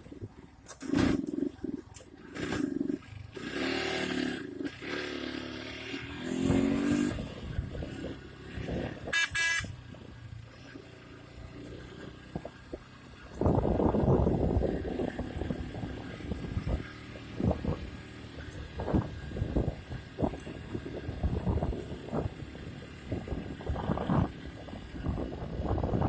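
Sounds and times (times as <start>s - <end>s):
short horn blast: 9.1s - 9.7s.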